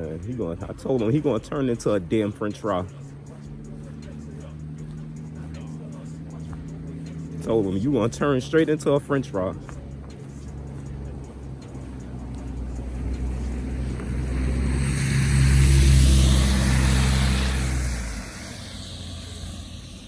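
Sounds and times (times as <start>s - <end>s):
vehicle engine hum: 0.0s - 20.0s
tyre hiss on snow: 14.3s - 20.0s.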